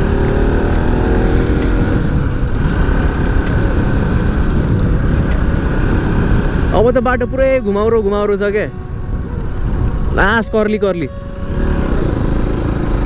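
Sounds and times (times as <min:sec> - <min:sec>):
motorcycle engine running: 0:00.0 - 0:13.0
wind rumble on microphone: 0:00.0 - 0:13.0.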